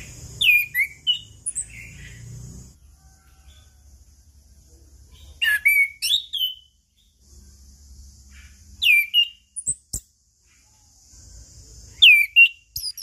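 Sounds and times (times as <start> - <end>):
thrush singing whistled phrases: 0.0 - 2.0, 5.4 - 6.8, 8.8 - 10.0, 12.0 - 13.0.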